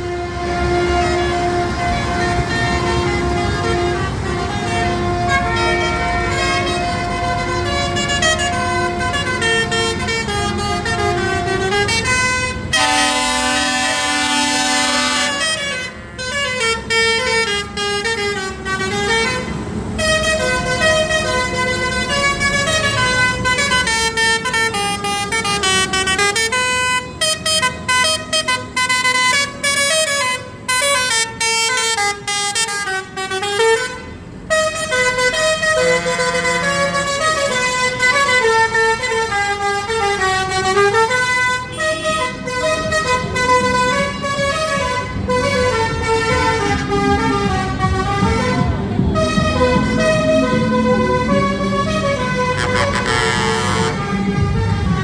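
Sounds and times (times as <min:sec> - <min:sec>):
harsh horn blast: 0:00.0 - 0:55.0
vehicle horns playing a tune: 0:00.0 - 0:55.0
low engine rumble: 0:34.2 - 0:55.0.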